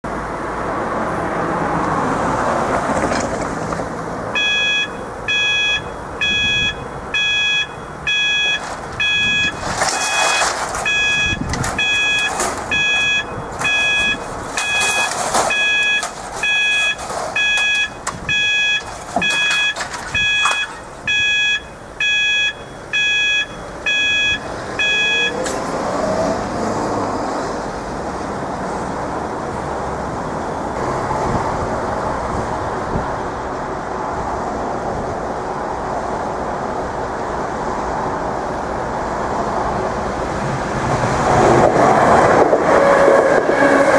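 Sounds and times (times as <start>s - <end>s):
road traffic rushing: 0.0s - 43.9s
level crossing alarm beeping: 4.3s - 25.5s.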